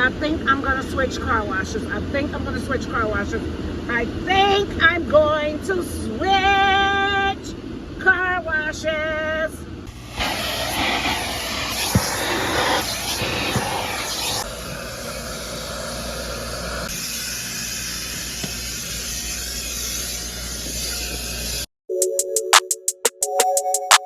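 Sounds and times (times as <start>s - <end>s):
car wash rushing hiss: 9.9s - 21.7s.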